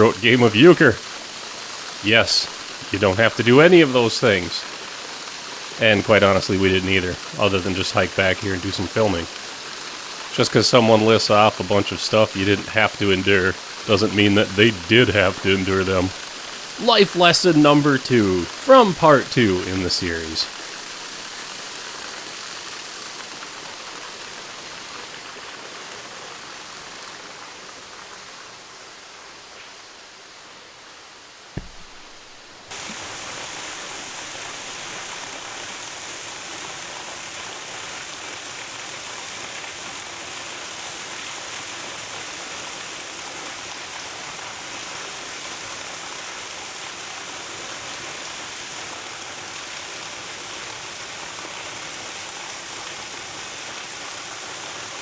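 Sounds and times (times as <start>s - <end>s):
waterfall rushing: 0.0s - 26.0s
thump: 31.6s - 32.8s.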